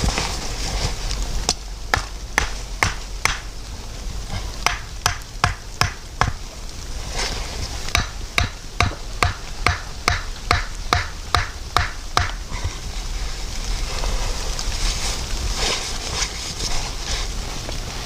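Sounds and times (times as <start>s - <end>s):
rhythmic chopping strikes: 1.9s - 3.5s, 4.6s - 6.4s, 7.9s - 12.4s.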